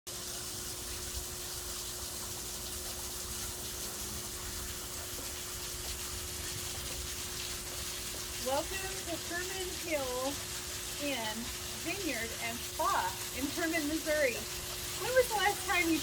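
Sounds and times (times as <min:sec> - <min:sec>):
waterfall splashing: 0:06.0 - 0:10.4, 0:11.0 - 0:16.0.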